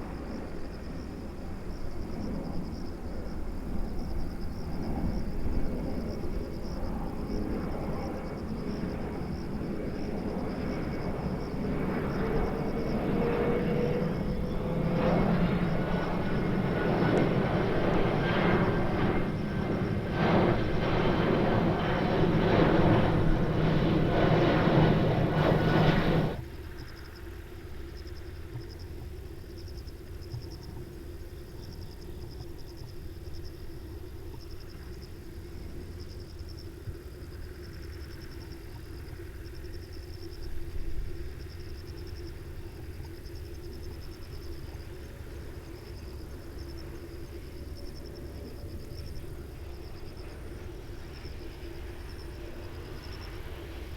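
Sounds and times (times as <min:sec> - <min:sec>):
insects chirring: 0:00.0 - 0:53.9
jet engines overhead: 0:00.0 - 0:53.9.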